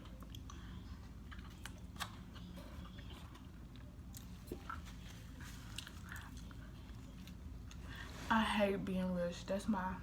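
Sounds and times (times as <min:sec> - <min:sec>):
person chewing egg: 0:00.0 - 0:07.8.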